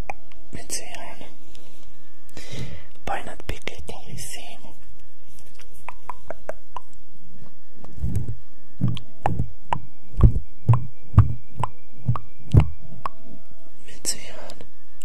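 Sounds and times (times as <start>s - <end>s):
soft deep thumps with clicks: 7.9s - 13.2s.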